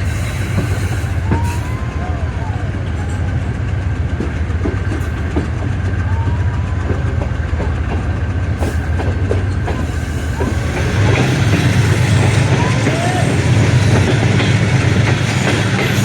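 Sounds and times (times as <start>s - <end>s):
diesel train rumble: 0.0s - 16.0s.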